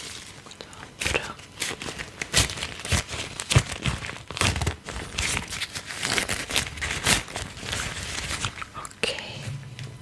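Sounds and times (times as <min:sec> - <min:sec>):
crinkling and rubbing: 0:01.5 - 0:10.0.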